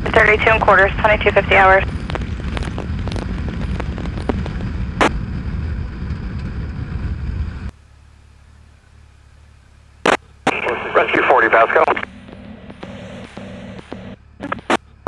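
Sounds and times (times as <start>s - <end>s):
radio static hiss: 0.0s - 5.1s, 10.0s - 15.0s.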